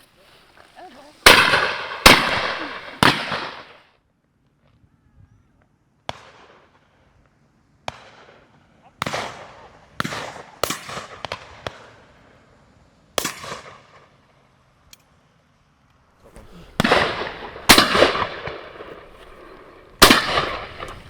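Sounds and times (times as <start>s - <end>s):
shotgun shots echoing: 1.2s - 3.8s, 16.4s - 21.0s.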